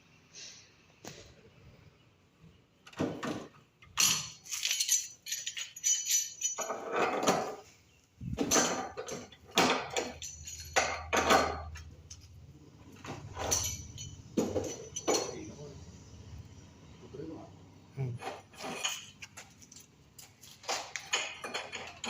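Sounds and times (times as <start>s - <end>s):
hard objects clinking and clattering: 3.0s - 12.3s, 12.9s - 15.5s, 18.2s - 22.0s.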